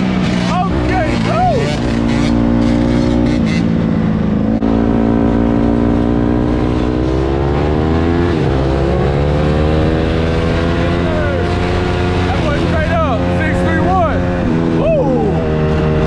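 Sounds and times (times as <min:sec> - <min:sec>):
vehicle engine accelerating: 0:00.0 - 0:16.0.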